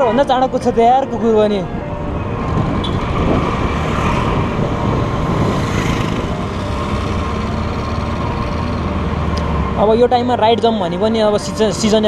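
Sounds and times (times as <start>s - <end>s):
road and wind noise: 0.0s - 12.0s
scooter engine running: 2.6s - 9.7s.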